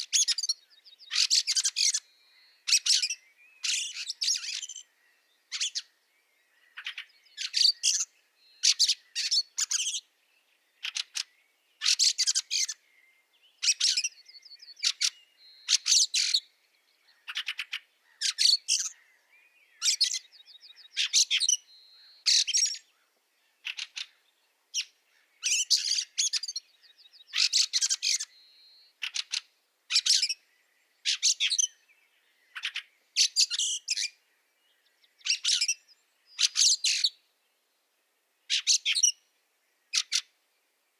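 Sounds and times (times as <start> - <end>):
birds giving chattering calls: 0.0 - 2.0, 2.6 - 5.9, 6.6 - 10.1, 10.8 - 12.8, 13.6 - 16.4, 17.1 - 19.1, 19.8 - 21.6, 22.2 - 22.9, 23.6 - 31.8, 32.4 - 34.2, 35.2 - 37.2, 38.5 - 39.2, 39.9 - 40.3.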